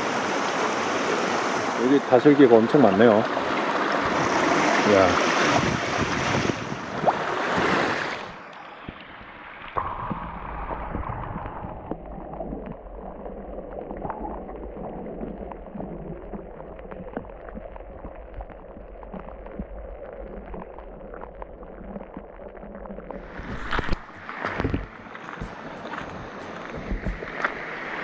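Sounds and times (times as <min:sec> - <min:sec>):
stream rushing: 0:00.0 - 0:09.9, 0:23.2 - 0:28.0.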